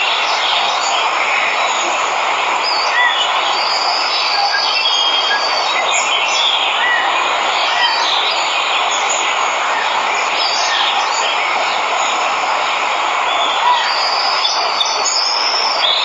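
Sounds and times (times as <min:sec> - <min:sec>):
birds chirping: 0:00.0 - 0:16.0
waterfall rushing: 0:00.0 - 0:16.0.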